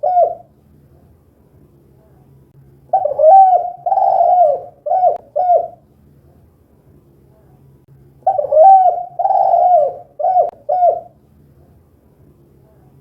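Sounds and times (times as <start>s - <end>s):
dove cooing: 0.0s - 0.5s, 2.9s - 5.8s, 8.2s - 11.2s.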